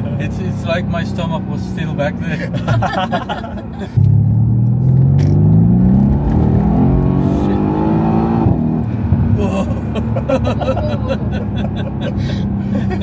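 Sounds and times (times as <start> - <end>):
car engine accelerating: 3.9 - 13.0.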